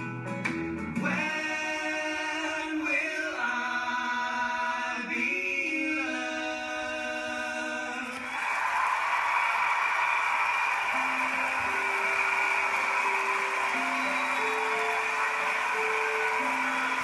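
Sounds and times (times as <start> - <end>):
crowd noise: 8.1 - 17.0.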